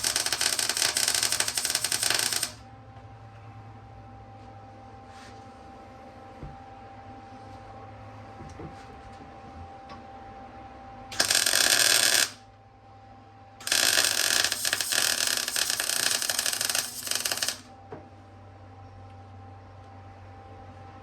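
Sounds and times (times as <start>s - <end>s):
crackling welding arc: 0.0s - 2.6s, 11.2s - 12.4s, 13.6s - 17.7s.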